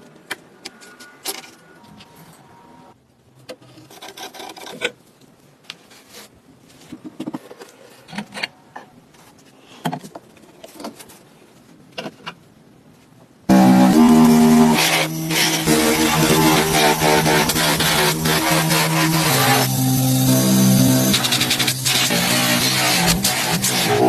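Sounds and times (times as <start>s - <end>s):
rubbing and scraping metal parts: 13.5s - 24.0s.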